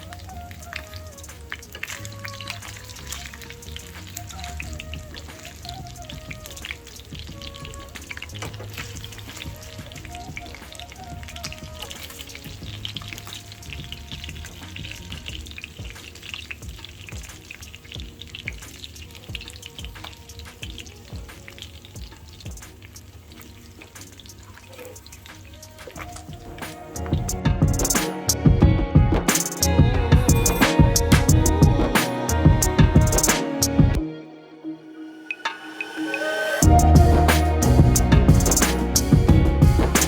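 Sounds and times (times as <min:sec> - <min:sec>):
meat sizzling in oil: 0:00.0 - 0:26.7
soft background music: 0:00.0 - 0:40.0.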